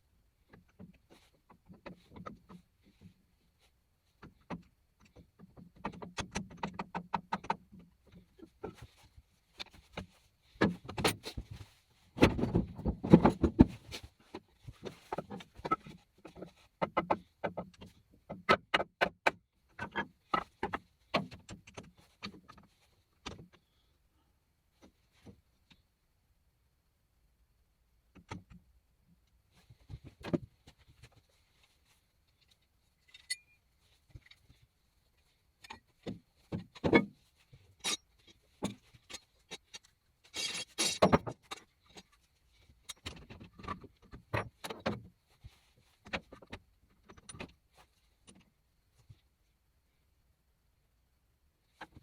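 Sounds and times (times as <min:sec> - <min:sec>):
metal tools clinking and rattling: 0:33.0 - 0:33.6, 0:37.8 - 0:41.6.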